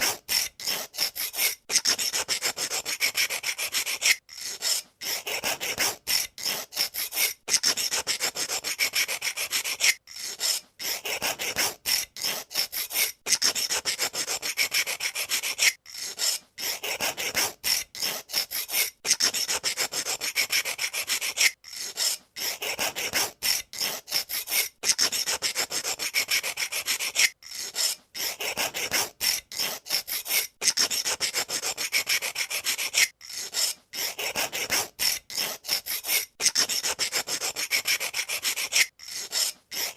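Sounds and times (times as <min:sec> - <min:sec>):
pencil sharpener scraping: 0:00.0 - 0:39.9.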